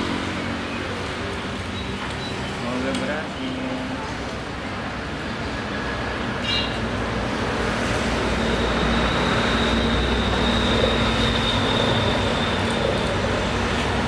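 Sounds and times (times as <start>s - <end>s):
thin high whine: 7.9s - 13.7s.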